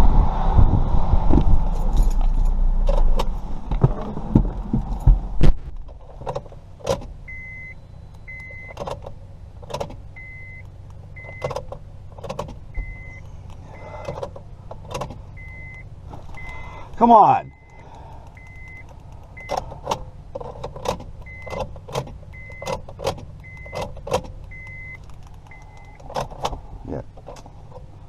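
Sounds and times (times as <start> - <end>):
low rumble in a car: 0.0 - 28.0
car warning chime beeps: 7.2 - 8.9, 10.1 - 11.6, 12.7 - 14.2, 15.3 - 19.7, 21.2 - 22.8, 23.4 - 23.9, 24.5 - 26.1
keys and ignition lock clicks: 8.1 - 16.6, 17.6 - 26.6.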